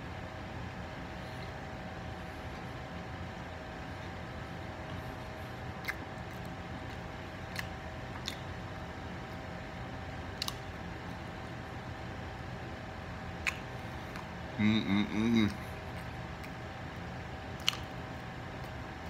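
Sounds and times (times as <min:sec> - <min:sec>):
steady background hum: 0:00.0 - 0:19.0
mouth clicks and smacks while chewing: 0:04.8 - 0:09.4, 0:10.3 - 0:11.2, 0:13.3 - 0:14.4, 0:15.3 - 0:19.0.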